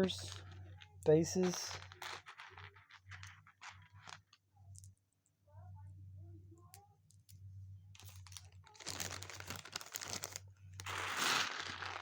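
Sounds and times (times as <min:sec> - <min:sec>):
plastic bag crinkling: 0:00.0 - 0:04.4, 0:08.0 - 0:12.0.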